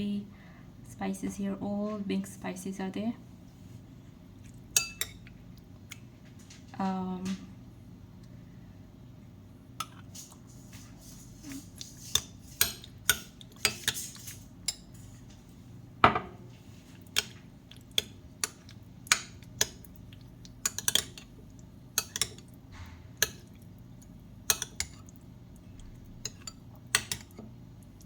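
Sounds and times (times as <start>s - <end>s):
metal spoon clinking against a dish: 4.8s - 5.2s, 24.5s - 25.0s.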